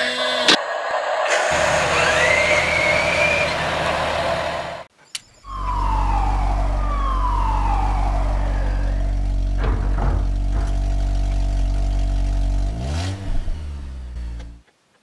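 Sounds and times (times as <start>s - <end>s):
falling sliding tones: 0.0s - 12.1s
rising whistle-like tone: 0.5s - 10.3s
low engine hum: 1.2s - 4.9s, 5.5s - 14.6s.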